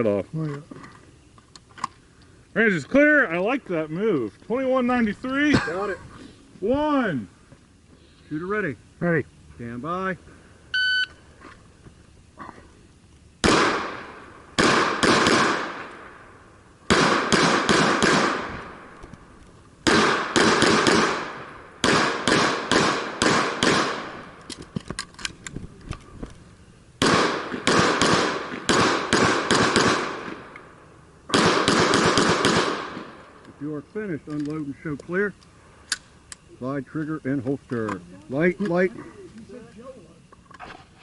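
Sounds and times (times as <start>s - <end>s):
pistol shots echoing: 13.4s - 16.2s, 16.9s - 18.9s, 19.8s - 24.4s, 27.0s - 30.6s, 31.3s - 33.3s.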